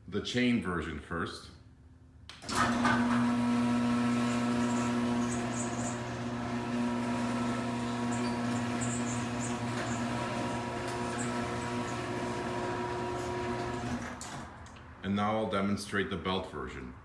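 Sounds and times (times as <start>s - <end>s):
garage door opener motor hum: 2.4s - 14.9s
high squeaks: 4.2s - 6.2s, 7.1s - 12.2s.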